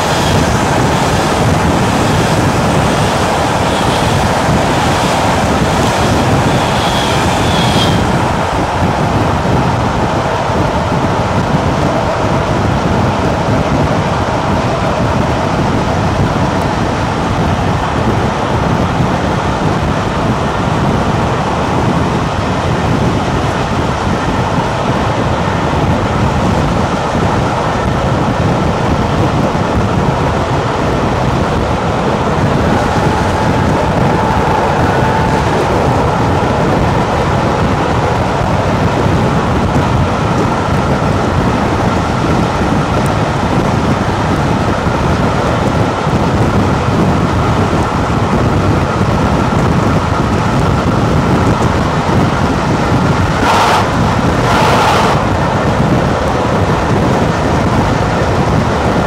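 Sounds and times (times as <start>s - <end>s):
sharp burst of noise: 0.0s - 11.4s, 53.2s - 56.3s
train rumbling at speed: 0.0s - 59.0s.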